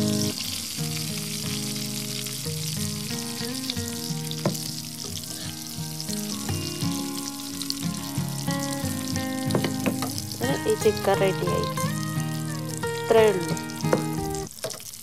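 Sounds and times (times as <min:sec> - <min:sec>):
chicken sizzling in hot oil: 0:00.0 - 0:15.0
soft background music: 0:08.4 - 0:14.5.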